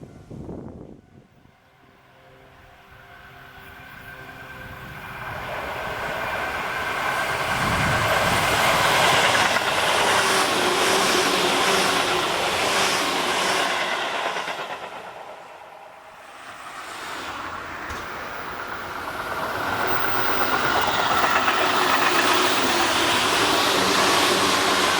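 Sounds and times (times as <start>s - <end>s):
electric train passing: 0.0s - 24.9s
wheels clacking over rail joints: 16.9s - 24.9s.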